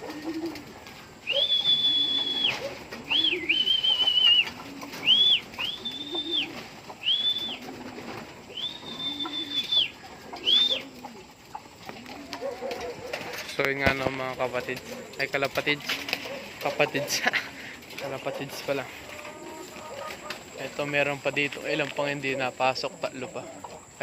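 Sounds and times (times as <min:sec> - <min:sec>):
pigeons cooing: 0:00.0 - 0:24.0
high whistled notes: 0:01.2 - 0:07.6, 0:08.5 - 0:10.9.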